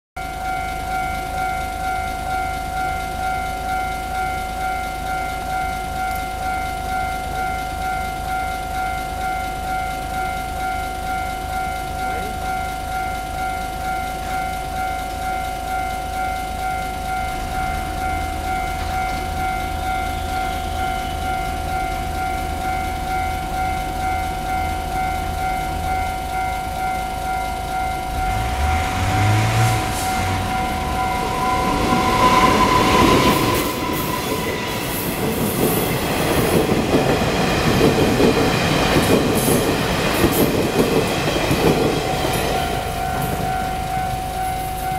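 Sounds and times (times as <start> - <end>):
diesel locomotive engine rumble: 0.2 - 44.9
level-crossing warning signal: 0.2 - 44.9
train horn: 28.1 - 36.0.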